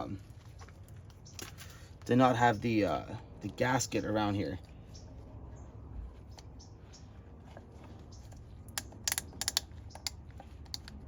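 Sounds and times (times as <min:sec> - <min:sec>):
small sharp plastic clicks: 0:08.7 - 0:11.0.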